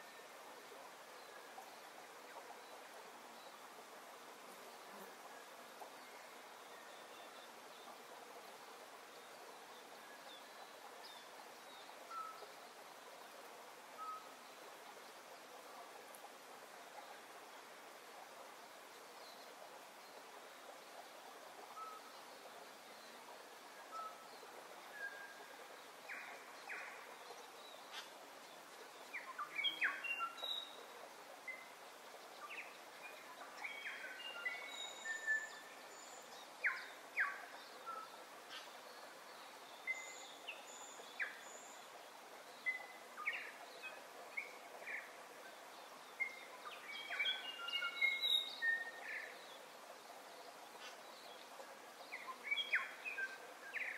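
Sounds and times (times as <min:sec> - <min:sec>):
steady background hiss: 0:00.0 - 0:53.9.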